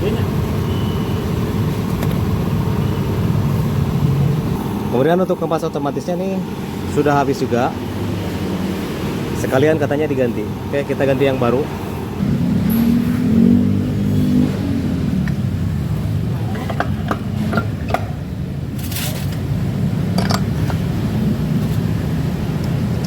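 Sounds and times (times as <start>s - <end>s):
engine running: 0.0s - 23.0s
metallic clicks of tools: 20.1s - 20.5s.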